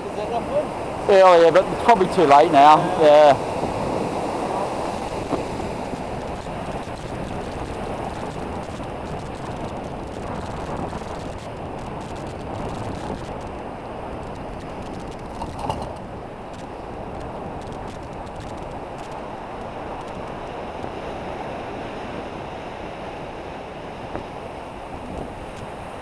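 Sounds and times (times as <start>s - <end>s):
ocean surf against rocks: 0.0s - 26.0s
wind rushing over microphone: 0.0s - 26.0s.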